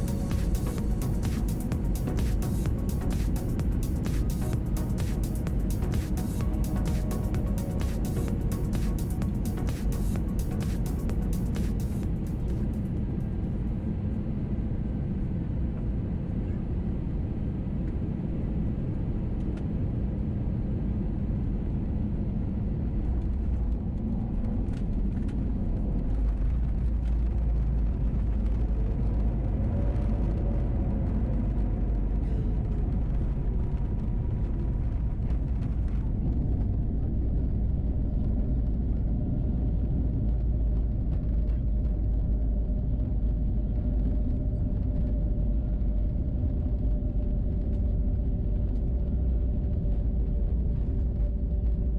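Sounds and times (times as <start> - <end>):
faint rising and falling tone: 0.0 - 13.3
aircraft engine rumble in cabin: 0.0 - 51.9.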